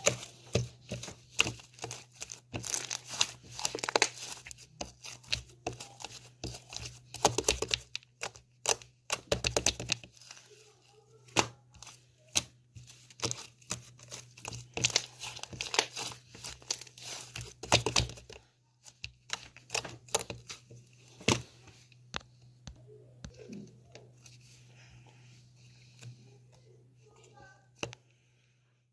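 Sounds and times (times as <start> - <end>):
thin material crinkling and tearing: 0.0 - 21.5.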